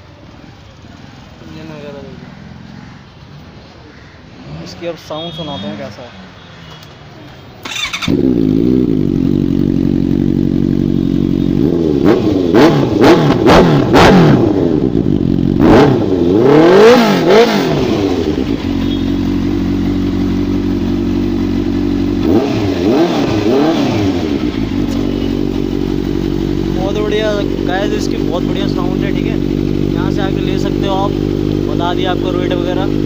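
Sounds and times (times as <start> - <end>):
motorcycle engine revving: 4.3 - 5.3, 7.6 - 33.0
motorcycle engine idling: 7.6 - 13.4, 14.6 - 16.3, 17.8 - 33.0.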